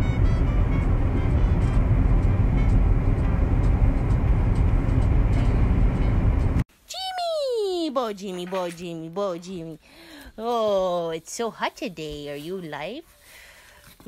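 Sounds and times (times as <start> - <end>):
tractor engine rumbling: 0.0 - 6.6.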